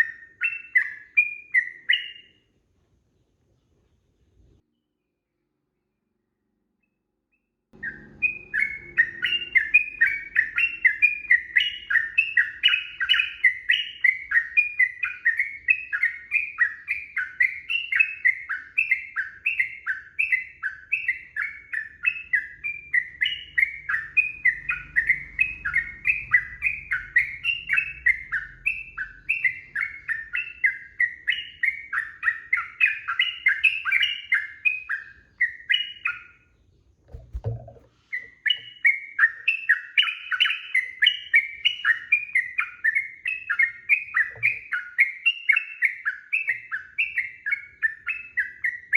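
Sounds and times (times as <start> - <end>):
bulbul singing chattering notes: 7.8 - 36.1.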